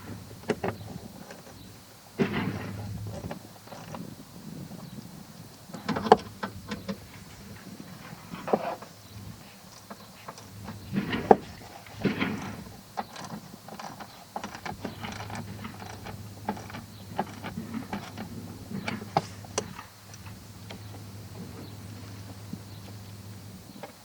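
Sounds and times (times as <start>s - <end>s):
steady low hum: 0.0s - 24.0s
hand tools clicking and knocking: 5.7s - 7.6s, 9.7s - 24.0s.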